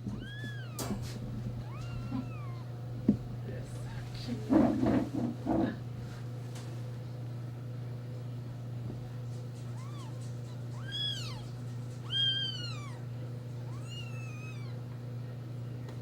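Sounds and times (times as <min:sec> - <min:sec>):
kittens mewing: 0:00.0 - 0:02.8, 0:09.6 - 0:14.9
steady low hum: 0:00.0 - 0:16.0.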